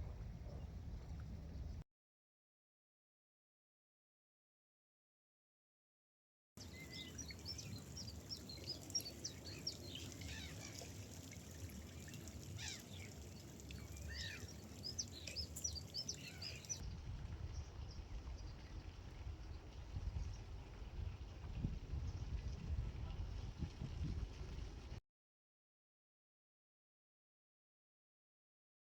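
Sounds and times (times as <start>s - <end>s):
water: 0.0s - 1.8s, 6.6s - 25.0s
wind: 0.0s - 1.8s, 6.6s - 25.0s
gulls calling: 6.6s - 11.2s, 12.0s - 16.8s.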